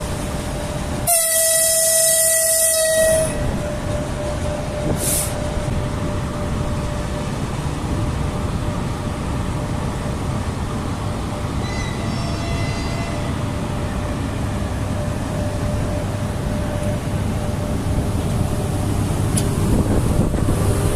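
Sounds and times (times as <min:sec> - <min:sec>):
train rumble: 0:00.0 - 0:20.9
locomotive horn blast: 0:01.0 - 0:03.8, 0:11.6 - 0:13.3.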